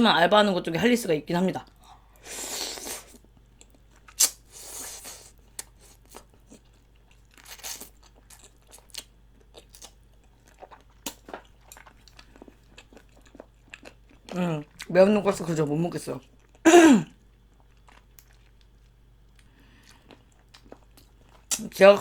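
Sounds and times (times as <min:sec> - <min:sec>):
person chewing food: 0:01.6 - 0:14.9, 0:16.2 - 0:21.8
wet mouth clicks: 0:04.2 - 0:04.4.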